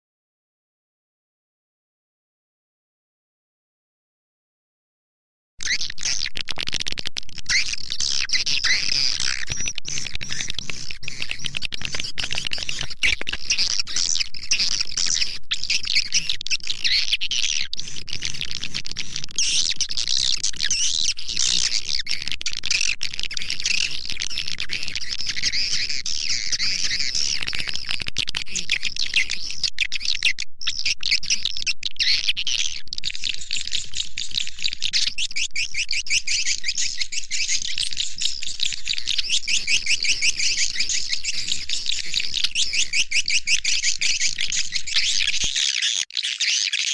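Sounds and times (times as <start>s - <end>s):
swiftlets chirping and twittering: 33.1s - 46.9s.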